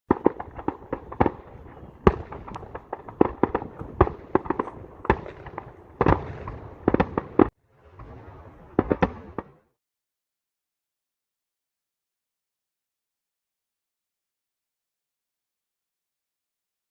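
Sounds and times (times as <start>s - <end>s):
fireworks bangs and cracks: 0.1s - 9.8s.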